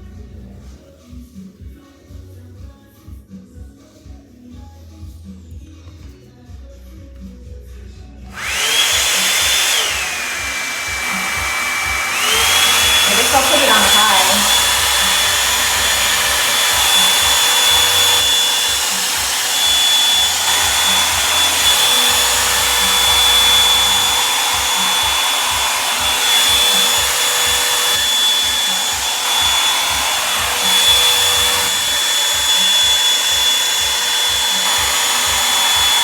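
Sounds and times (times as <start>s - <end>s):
hair dryer brush blowing air: 8.3s - 36.0s.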